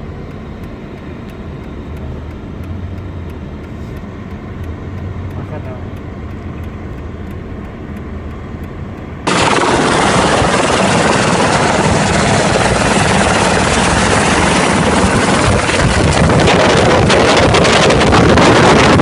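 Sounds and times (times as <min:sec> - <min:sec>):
helicopter rotor and engine: 0:09.2 - 0:19.0.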